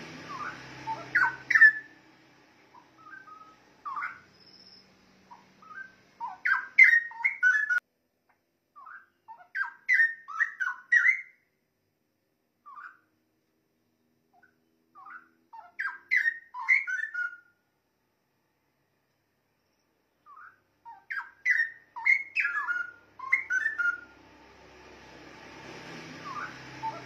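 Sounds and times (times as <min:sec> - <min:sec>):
bird warbling song: 0:00.1 - 0:01.9, 0:02.7 - 0:07.8, 0:08.8 - 0:11.4, 0:12.6 - 0:13.1, 0:14.4 - 0:17.5, 0:19.6 - 0:24.2, 0:26.0 - 0:27.0.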